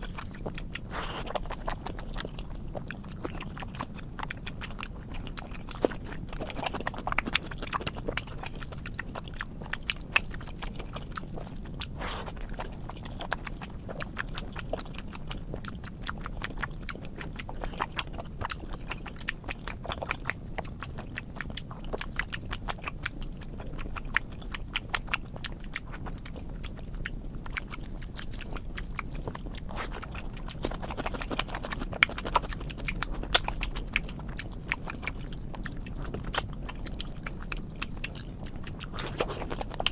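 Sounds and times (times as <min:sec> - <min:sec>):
person chewing food: 0:00.0 - 0:39.9.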